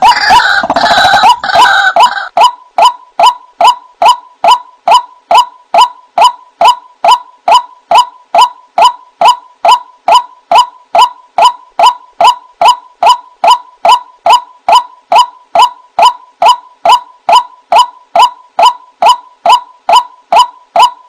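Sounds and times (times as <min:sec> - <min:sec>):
waterhen call: 0:00.0 - 0:04.6.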